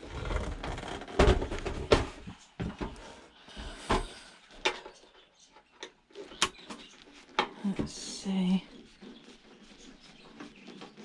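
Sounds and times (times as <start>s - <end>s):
objects knocking and clunking: 0.1s - 8.0s.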